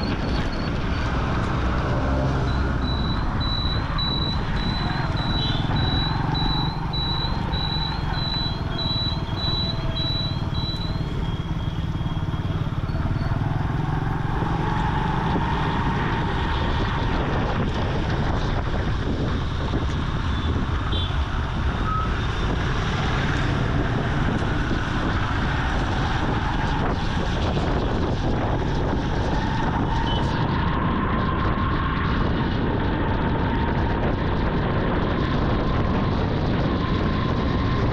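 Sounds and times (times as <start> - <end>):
road and wind noise: 0.0 - 37.9
motorcycle engine revving: 0.7 - 18.4
short high-pitched beeps: 2.4 - 11.8.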